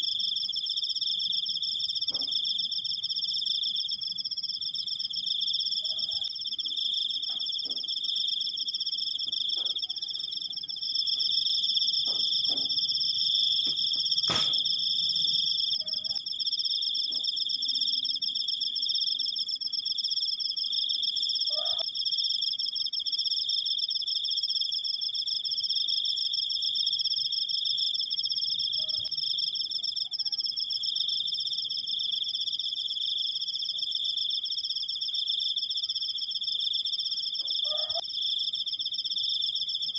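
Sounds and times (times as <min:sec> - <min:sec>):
crickets trilling: 0:00.0 - 0:39.9
sharp click: 0:13.7 - 0:14.7.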